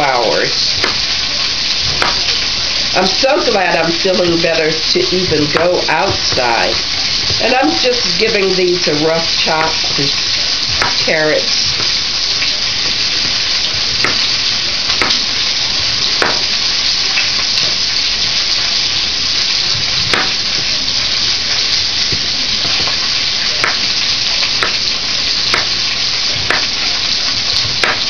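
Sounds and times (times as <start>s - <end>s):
knife chopping on cutting board: 0.8s - 1.1s, 1.9s - 2.3s, 10.8s - 11.1s, 13.2s - 14.3s, 14.9s - 15.2s, 16.2s - 16.5s, 20.1s - 20.4s, 23.6s - 23.9s, 24.6s - 24.8s, 25.5s - 25.8s, 26.4s - 26.8s, 27.7s - 28.0s.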